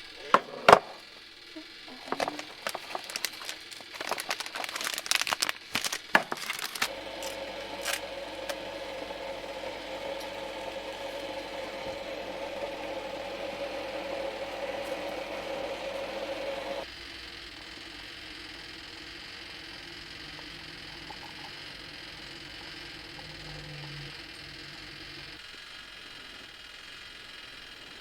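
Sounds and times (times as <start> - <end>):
steady mechanical hum: 0.0 - 28.0
crinkling clicking handling noise: 1.9 - 8.7.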